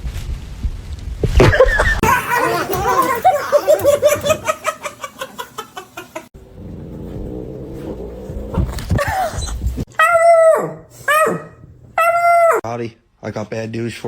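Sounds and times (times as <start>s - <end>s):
person laughing: 1.4s - 6.3s.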